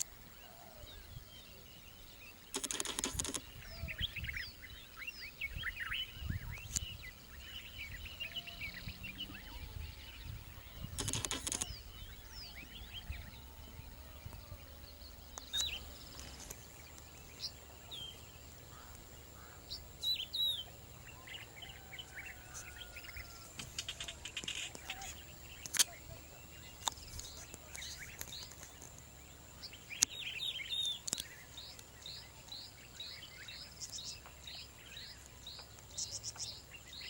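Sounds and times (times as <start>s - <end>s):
birds chirping and calling: 0.0s - 37.0s
bird rattling burst: 2.5s - 3.4s, 11.0s - 11.7s.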